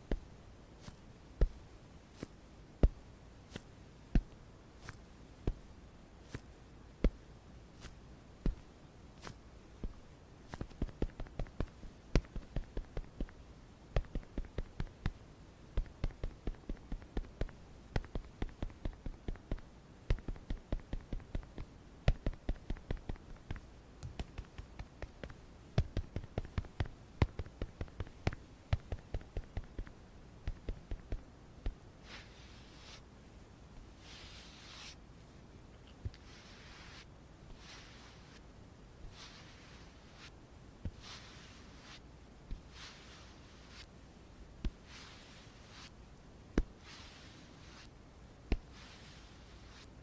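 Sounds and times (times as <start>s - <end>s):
makeup tools tapping: 15.8s - 29.9s.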